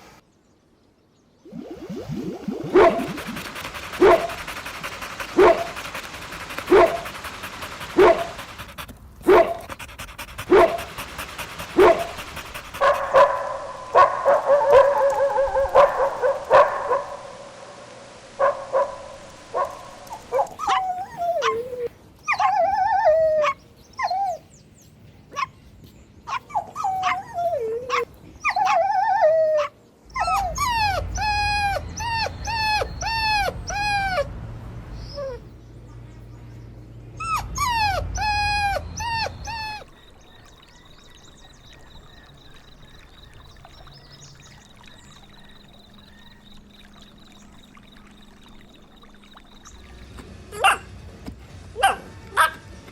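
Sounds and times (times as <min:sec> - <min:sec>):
puppies whimpering and whining: 0:01.5 - 0:04.6, 0:20.6 - 0:24.4, 0:26.4 - 0:34.3, 0:35.0 - 0:35.5, 0:37.2 - 0:40.2
puppies barking: 0:02.6 - 0:17.1, 0:29.6 - 0:34.3, 0:37.2 - 0:40.5, 0:50.6 - 0:51.0, 0:51.8 - 0:52.6.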